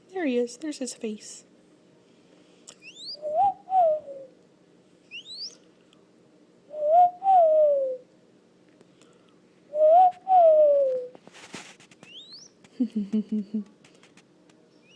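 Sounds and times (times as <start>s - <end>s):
bird whistling: 2.8s - 4.3s, 5.1s - 5.6s, 6.7s - 8.0s, 9.7s - 11.1s, 12.1s - 12.6s
bird hooting: 2.8s - 4.4s, 5.1s - 5.6s, 6.7s - 8.1s, 9.7s - 11.2s, 12.1s - 12.6s.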